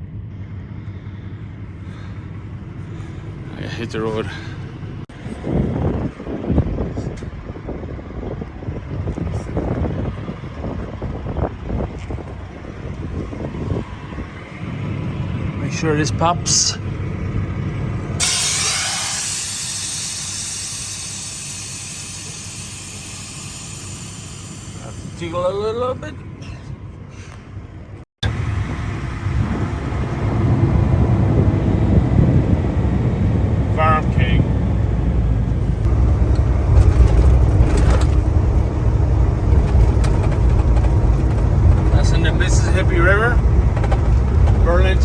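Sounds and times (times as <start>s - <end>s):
diesel engine idling: 0.0s - 45.0s
road noise: 0.0s - 45.0s
air brake hissing: 18.2s - 25.4s.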